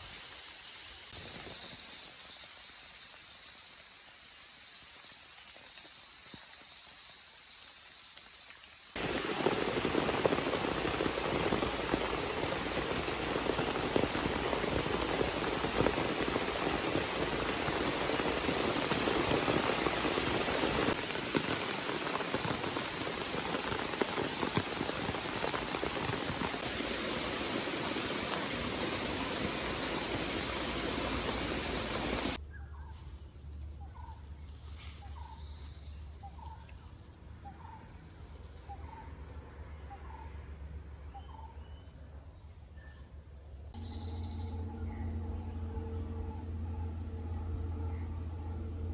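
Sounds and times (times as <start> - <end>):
heavy rain falling: 8.9 - 32.4.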